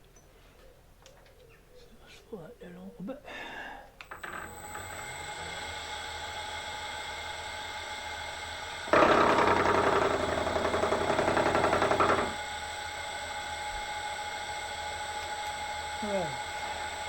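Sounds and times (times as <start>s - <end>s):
milling machine spindle running: 4.1s - 17.0s
cutter cutting steel plate: 4.2s - 12.6s.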